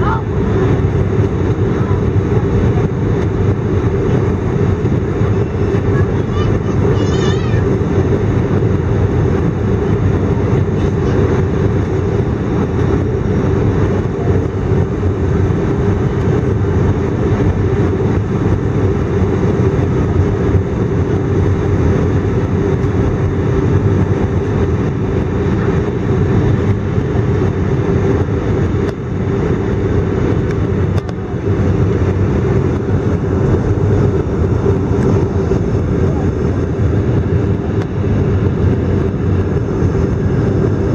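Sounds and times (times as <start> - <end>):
airplane cabin engine rumble: 0.0 - 40.9.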